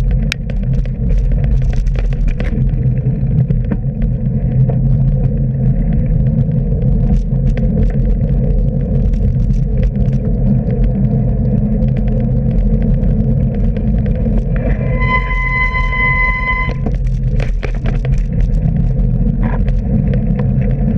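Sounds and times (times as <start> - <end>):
bicycle on wet road: 0.0 - 20.9
wind on microphone: 0.0 - 20.9
steady high tone: 14.6 - 16.9.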